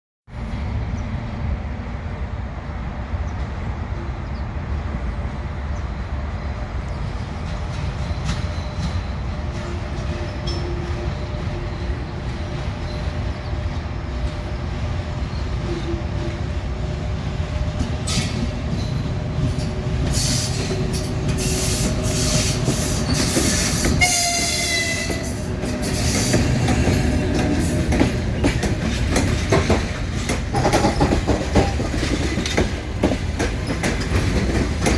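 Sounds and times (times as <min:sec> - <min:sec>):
train rumbling: 0:00.3 - 0:34.9
train horn blast: 0:23.7 - 0:26.1.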